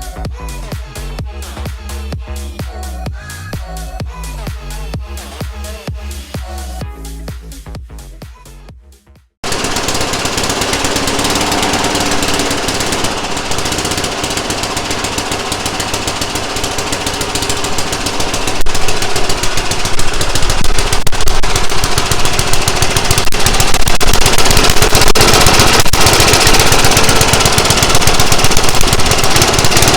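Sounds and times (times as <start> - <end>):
lawn mower engine running: 9.4 - 29.9.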